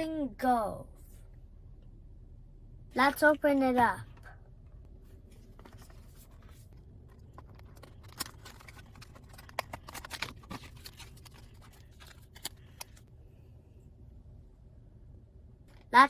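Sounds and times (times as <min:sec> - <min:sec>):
packaging rustling: 0:05.4 - 0:13.0
packaging clicks: 0:07.1 - 0:13.0.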